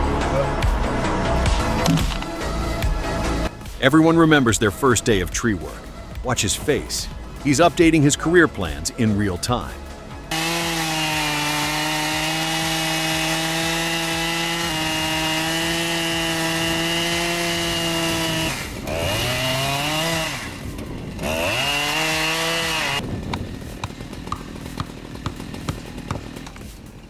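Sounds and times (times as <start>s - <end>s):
chainsaw revving: 10.1s - 27.0s.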